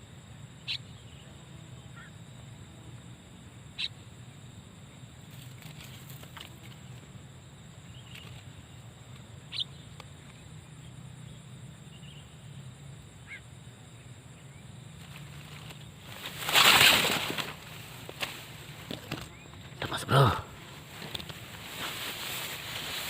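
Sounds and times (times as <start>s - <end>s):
bird chirps: 9.5s - 12.5s.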